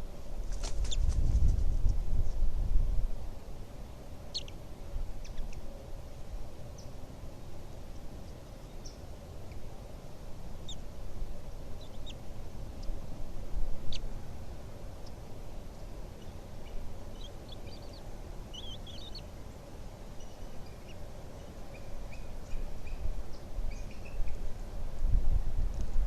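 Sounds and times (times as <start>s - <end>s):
high-pitched bird chirps: 16.2s - 19.2s.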